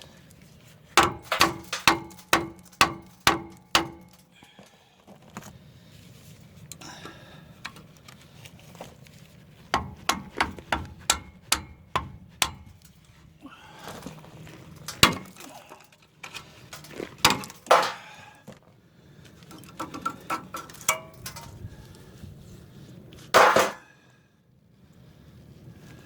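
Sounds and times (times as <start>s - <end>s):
hammer striking metal: 1.0s - 4.2s, 9.8s - 12.9s, 15.0s - 15.3s.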